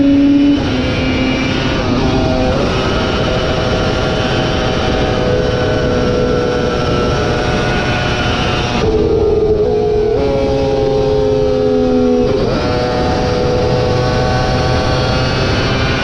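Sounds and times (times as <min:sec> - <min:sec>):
motorcycle engine running hard: 0:00.0 - 0:16.0
wind and road noise: 0:00.0 - 0:16.0.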